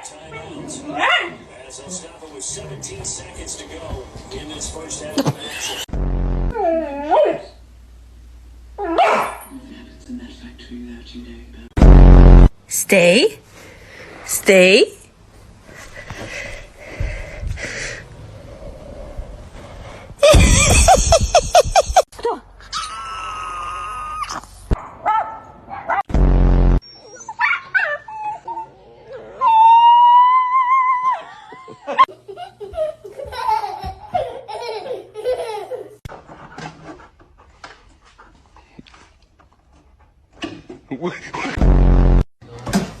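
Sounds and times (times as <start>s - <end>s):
dog yelping: 8.8s - 9.4s
person laughing: 20.2s - 22.1s.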